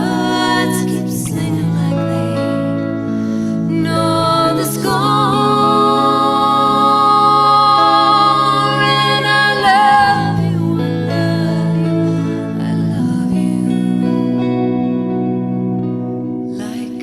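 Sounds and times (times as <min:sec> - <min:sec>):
person singing long vibrato note: 0:03.7 - 0:14.1.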